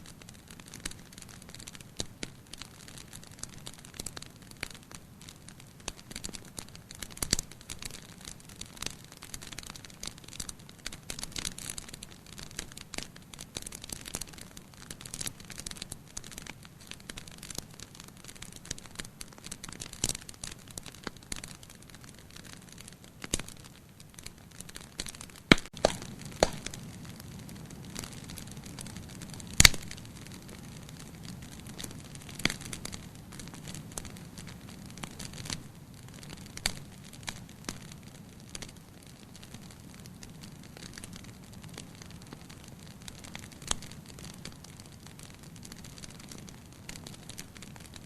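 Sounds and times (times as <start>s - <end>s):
fire crackling: 0.0s - 48.0s
fire popping and snapping: 0.0s - 48.0s
fire hissing: 25.0s - 35.2s.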